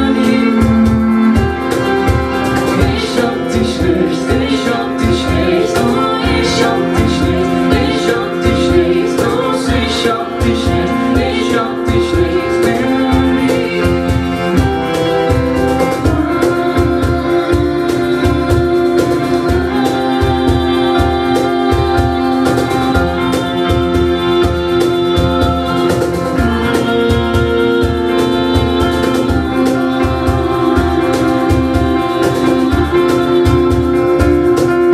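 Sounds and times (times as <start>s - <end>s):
organ-like keyboard chords: 0.0s - 34.9s.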